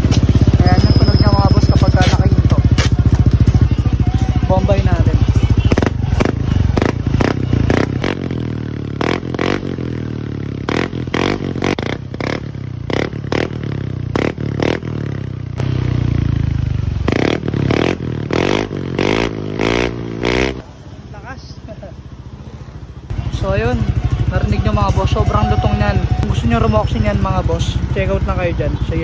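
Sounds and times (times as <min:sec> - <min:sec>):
scooter engine throttle blips: 0:00.0 - 0:09.6, 0:22.9 - 0:29.0.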